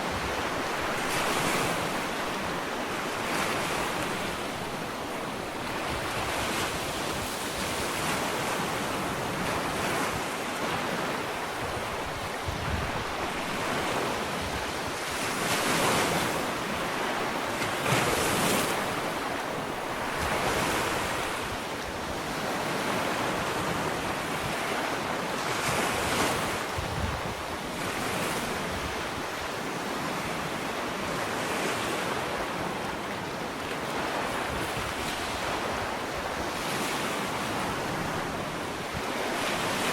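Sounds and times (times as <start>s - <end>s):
wind on microphone: 0.0s - 32.7s, 33.9s - 39.9s
ocean waves breaking on beach: 0.0s - 39.9s.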